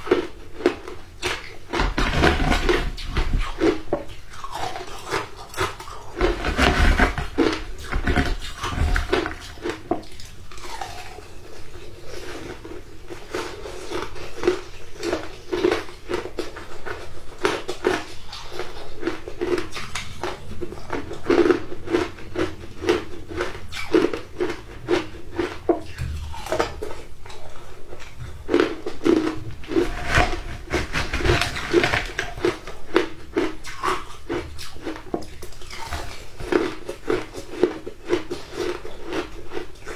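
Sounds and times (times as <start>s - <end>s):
person chewing shaved ice: 0.0s - 39.9s.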